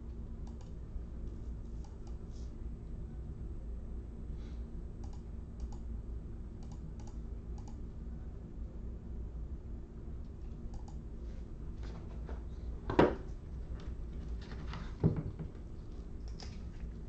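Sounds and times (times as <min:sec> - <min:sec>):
steady low hum: 0:00.0 - 0:17.0
light clicks: 0:00.4 - 0:00.8, 0:05.0 - 0:05.9, 0:06.6 - 0:07.8, 0:10.7 - 0:11.0.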